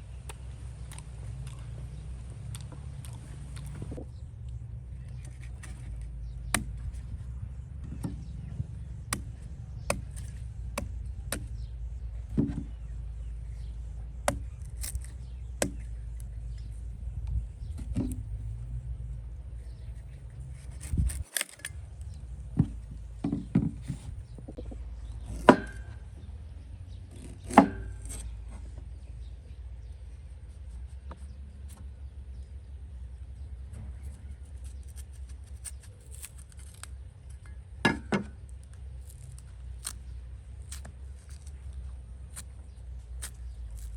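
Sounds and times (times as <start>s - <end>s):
steady low rumble: 0.0s - 23.2s.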